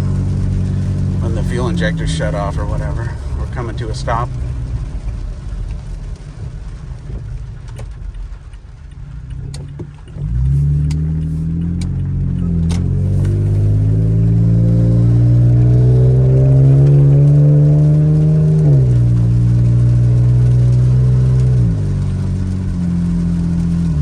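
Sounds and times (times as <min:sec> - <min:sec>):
truck engine rumbling: 0:00.0 - 0:24.0
engine drone climbing in pitch: 0:07.8 - 0:24.0.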